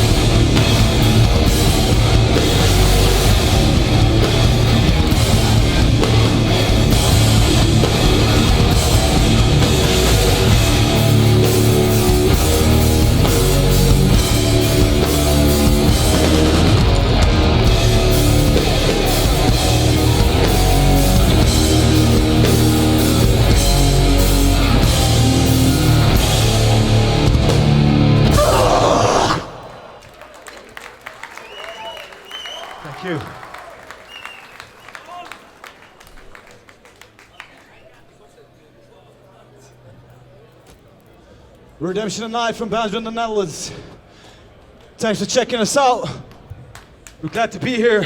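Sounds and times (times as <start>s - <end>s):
bass guitar: 0.0s - 29.6s
distorted electric guitars: 0.0s - 29.6s
pounding drum kit: 0.0s - 29.6s.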